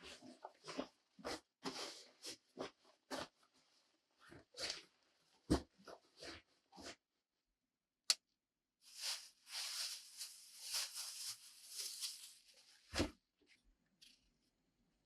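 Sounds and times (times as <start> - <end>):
rustling and scraping: 8.9 - 13.2.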